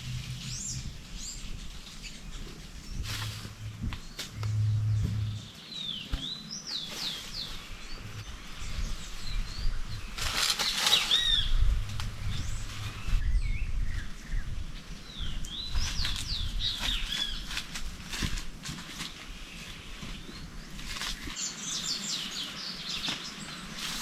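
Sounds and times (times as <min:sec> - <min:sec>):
small birds chirping: 0:00.0 - 0:17.8, 0:19.2 - 0:24.0
rustling and handling noises: 0:10.0 - 0:13.2, 0:15.7 - 0:21.5.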